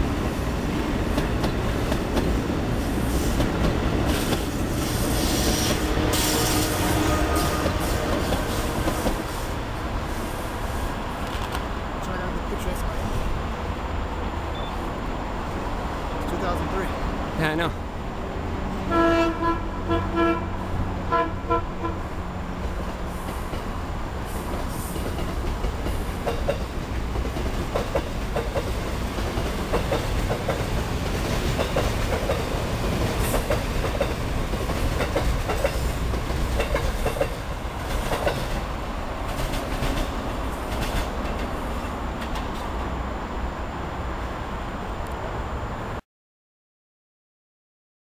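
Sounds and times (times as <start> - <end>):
train wheels clacking over rail joints: 1.0 - 2.4, 24.4 - 42.7
train horn blasts: 5.1 - 9.2, 18.8 - 22.1.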